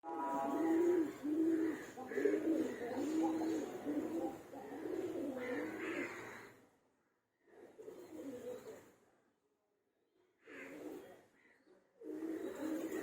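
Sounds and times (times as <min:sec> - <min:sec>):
dove cooing: 0:00.2 - 0:06.5, 0:07.5 - 0:08.9, 0:12.0 - 0:13.0.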